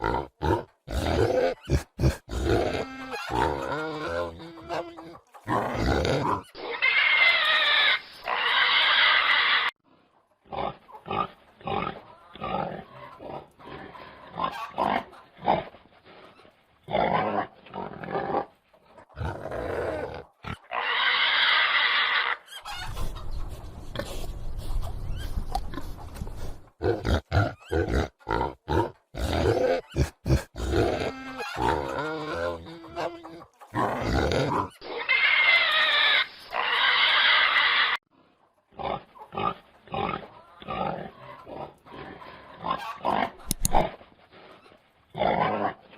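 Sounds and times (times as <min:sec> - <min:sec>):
pigs grunting: 0:00.0 - 0:09.7, 0:10.4 - 0:22.4, 0:25.1 - 0:38.0, 0:38.7 - 0:45.9
pig squealing loudly: 0:00.0 - 0:09.8, 0:19.2 - 0:23.0, 0:26.9 - 0:38.0.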